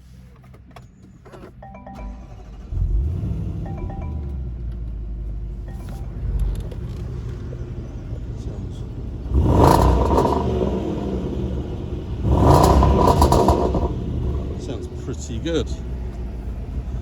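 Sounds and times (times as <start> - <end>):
car engine idling: 0.0 - 17.0
car engine revving with rasp: 2.2 - 3.7, 6.1 - 17.0.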